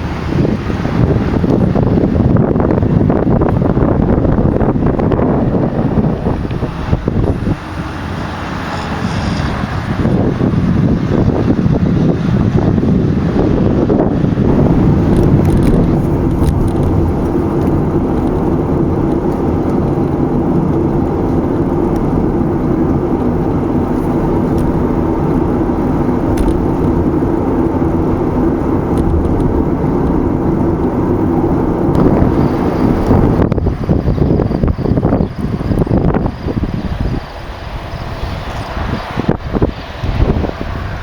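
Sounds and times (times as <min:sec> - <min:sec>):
car driving at speed: 0:00.0 - 0:41.0.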